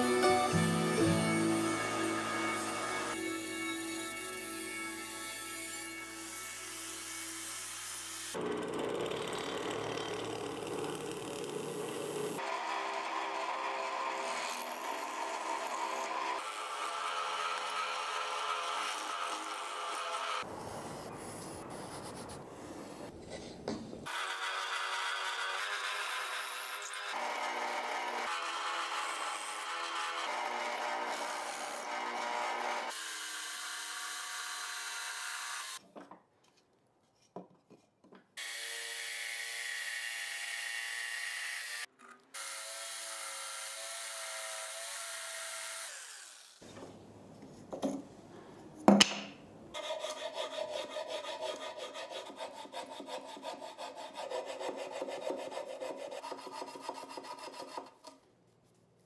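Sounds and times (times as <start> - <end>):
jigsaw cutting plywood: 8.3 - 20.5, 24.1 - 35.8
power drill boring into wood: 24.1 - 35.8.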